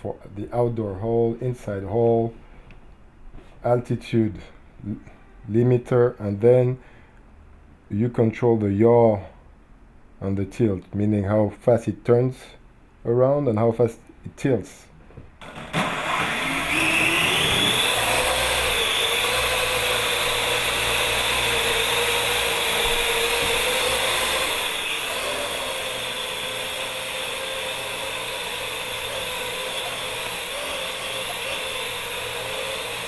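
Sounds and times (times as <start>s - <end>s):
drone rotors whining and humming: 15.4s - 33.0s.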